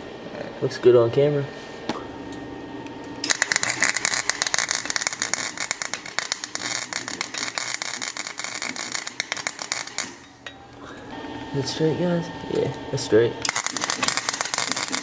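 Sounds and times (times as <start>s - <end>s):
welder arc crackling: 3.2s - 10.5s, 13.4s - 15.0s.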